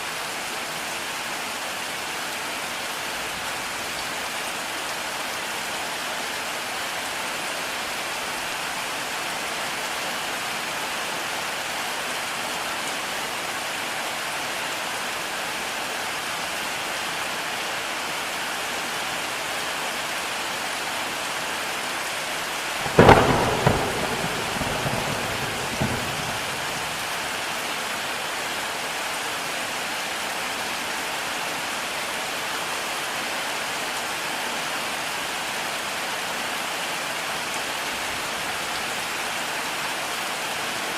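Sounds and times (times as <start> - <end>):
heavy rain: 0.0 - 40.9
thunderclap rumbling: 22.8 - 27.3.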